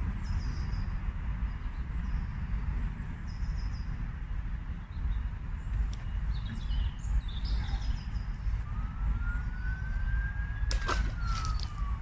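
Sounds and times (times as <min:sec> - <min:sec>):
bird chirps: 0:04.8 - 0:12.0
distant siren wailing: 0:08.4 - 0:12.0.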